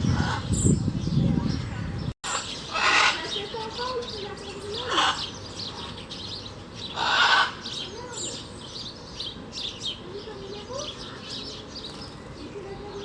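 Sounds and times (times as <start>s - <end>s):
birds chirping and calling: 0.0s - 13.0s
harsh bird call: 6.8s - 10.0s.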